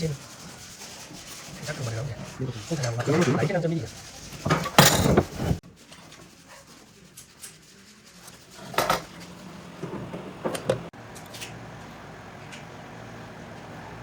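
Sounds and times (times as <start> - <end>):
objects knocking and clattering: 4.3 - 6.1.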